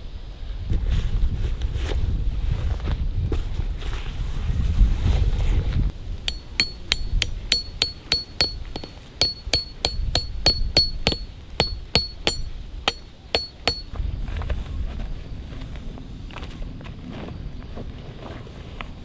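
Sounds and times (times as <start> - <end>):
ringing metallic strikes: 6.3 - 13.9.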